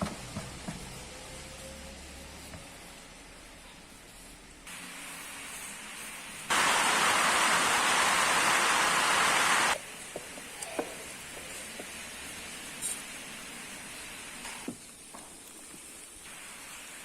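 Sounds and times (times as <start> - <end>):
falling rain hiss: 4.7 - 17.0
loud rush of noise: 6.5 - 9.8.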